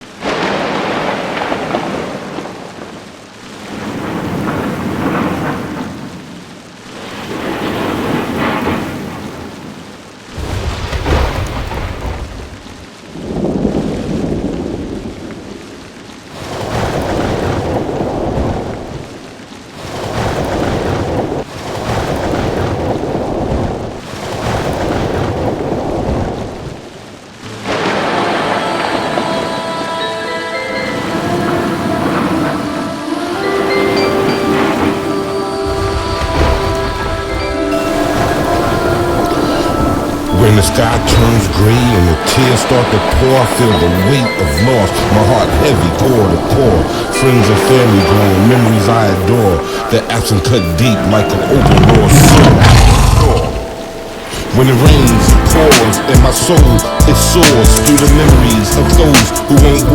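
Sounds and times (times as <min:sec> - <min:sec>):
rolling thunder: 0:00.0 - 0:29.4, 0:35.7 - 0:43.6, 0:51.3 - 0:59.9
heavy rain: 0:00.0 - 0:59.9.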